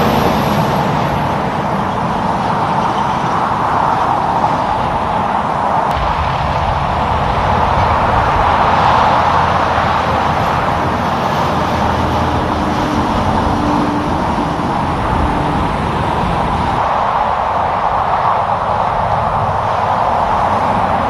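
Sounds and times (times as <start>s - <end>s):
truck passing on highway: 0.0s - 21.0s.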